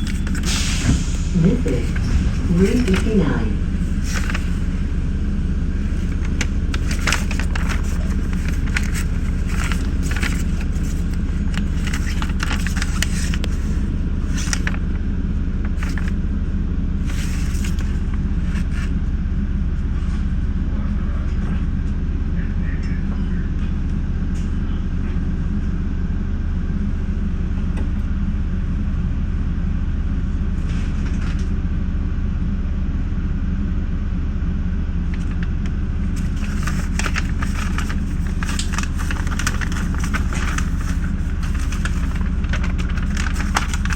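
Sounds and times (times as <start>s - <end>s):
train cab rumble and drone: 0.0s - 43.9s
sharp clicks and crackles: 6.0s - 13.7s, 36.2s - 43.9s.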